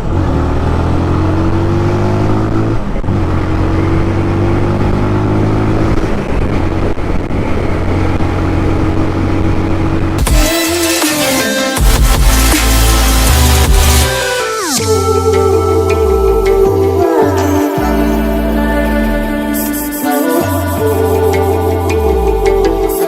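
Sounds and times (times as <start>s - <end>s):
motorcycle engine running: 0.0s - 23.0s
wind noise on microphone: 2.4s - 10.3s
electronic music: 10.2s - 23.0s.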